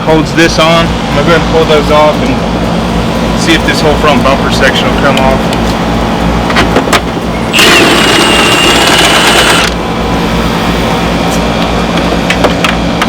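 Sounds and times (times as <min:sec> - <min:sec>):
steady low hum: 0:00.0 - 0:13.0
power wrench whining: 0:07.5 - 0:09.8.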